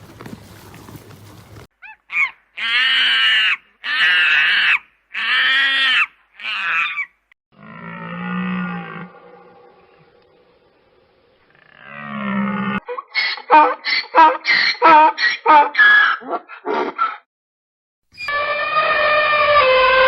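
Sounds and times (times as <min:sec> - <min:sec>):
animal calling: 0:00.7 - 0:07.2.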